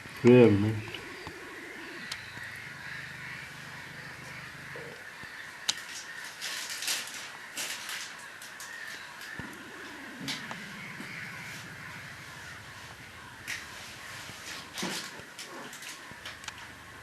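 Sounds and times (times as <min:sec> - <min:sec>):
distant birds chorus: 0:00.0 - 0:17.0
harsh rasping bird calls: 0:00.0 - 0:17.0
low hum: 0:09.4 - 0:14.8.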